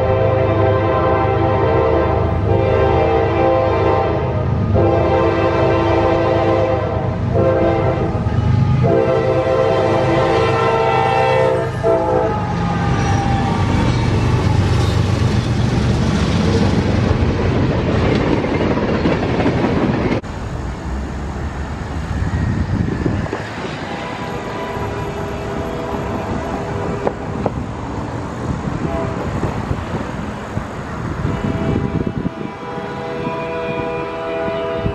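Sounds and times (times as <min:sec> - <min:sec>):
train horn blasts: 0:00.0 - 0:15.0, 0:23.6 - 0:27.4, 0:28.8 - 0:29.5, 0:31.2 - 0:34.9
train rumbling and wheel clatter: 0:00.0 - 0:34.9.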